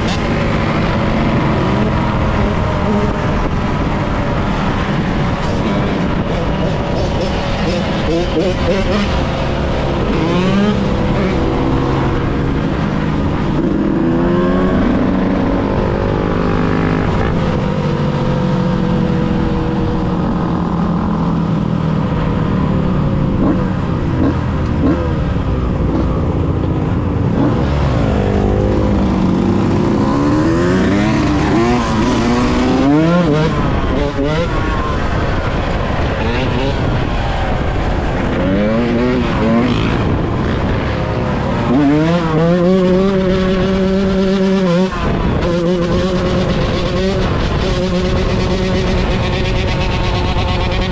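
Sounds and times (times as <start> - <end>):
dirt bike engine revving: 5.4 - 12.9, 22.7 - 37.3, 38.1 - 50.9.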